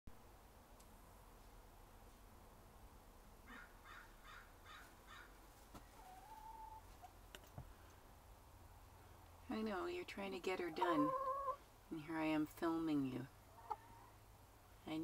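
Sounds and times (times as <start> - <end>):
hen calling: 6.0 - 6.9, 10.4 - 11.7, 13.4 - 14.2.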